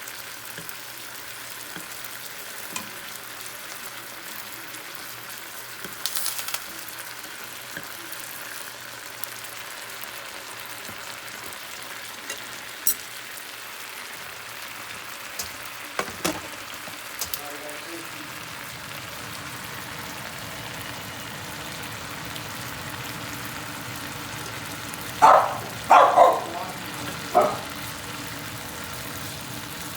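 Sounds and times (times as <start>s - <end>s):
chicken sizzling in a pan: 0.0s - 29.9s
oil popping and crackling: 5.7s - 8.0s, 14.2s - 29.9s.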